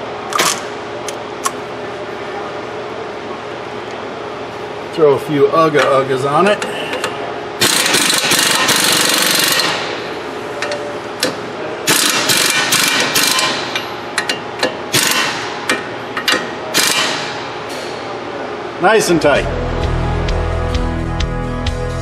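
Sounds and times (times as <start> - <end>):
air impact wrench hammering: 7.0 - 18.0.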